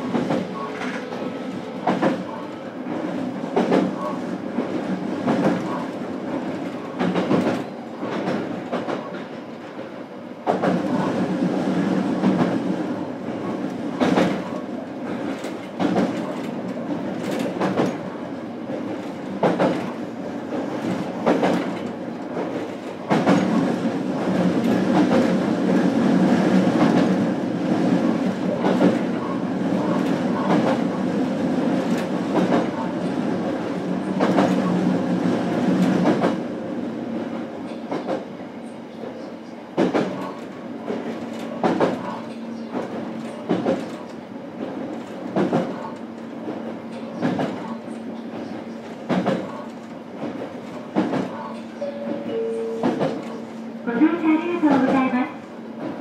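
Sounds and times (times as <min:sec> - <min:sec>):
train running rumble: 0:00.0 - 0:36.5, 0:39.0 - 0:56.0.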